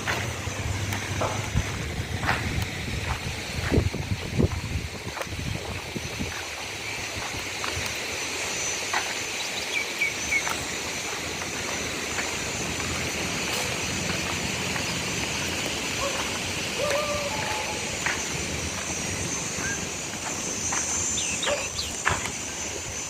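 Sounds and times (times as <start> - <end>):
steady outdoor hiss: 0.0 - 23.0
bird chirps: 9.3 - 10.6, 20.7 - 22.1.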